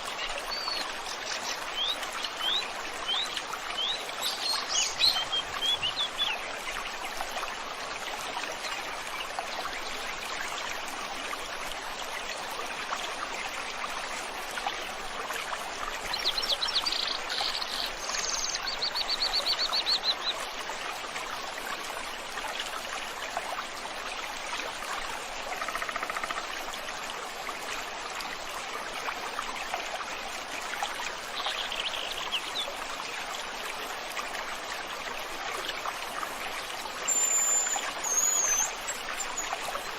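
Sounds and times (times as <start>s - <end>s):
stream water running: 0.0s - 39.9s
songbird calls: 37.1s - 39.5s.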